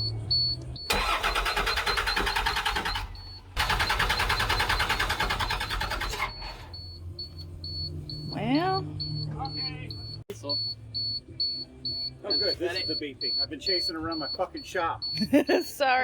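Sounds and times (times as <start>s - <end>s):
diesel engine cranking by starter: 0.0s - 7.9s.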